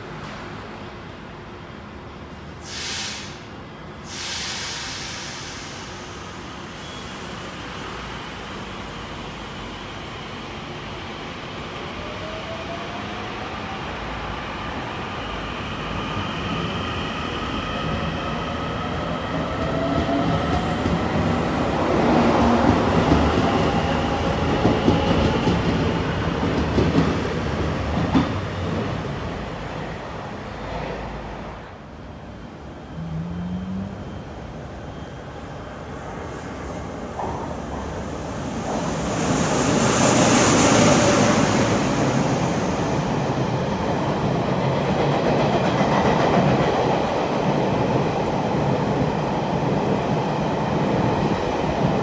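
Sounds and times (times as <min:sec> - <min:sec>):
train wheels clacking over rails: 0:22.2 - 0:28.9, 0:39.6 - 0:49.8.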